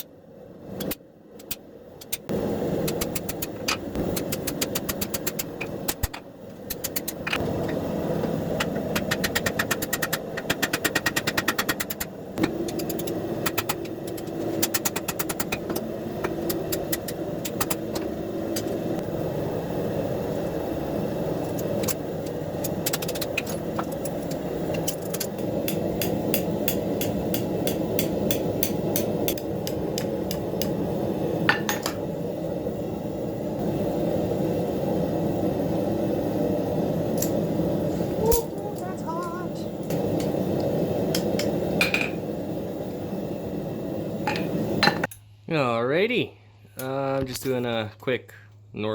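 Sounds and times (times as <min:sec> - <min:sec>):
hammer striking steel on anvil: 0:24.8 - 0:30.7.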